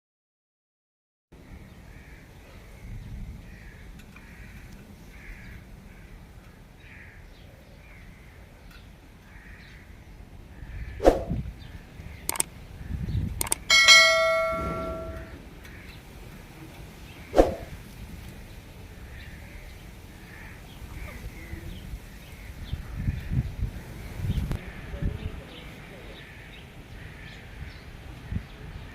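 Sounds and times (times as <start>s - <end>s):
struck metal object ringing: 13.6s - 15.4s.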